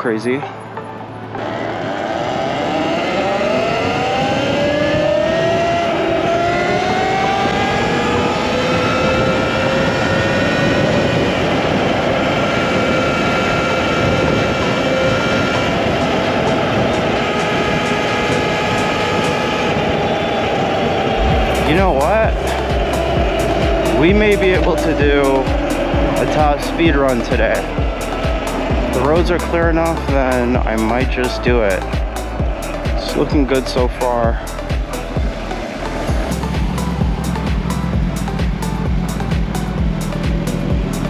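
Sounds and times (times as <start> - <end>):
electric motor whining: 1.3 - 33.0
wind noise: 1.3 - 41.0.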